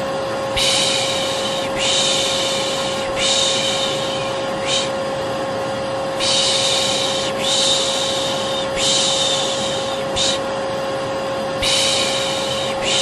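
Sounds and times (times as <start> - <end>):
vacuum cleaner running: 0.0 - 13.0
person shushing: 0.6 - 5.0, 6.2 - 10.5, 11.6 - 13.0.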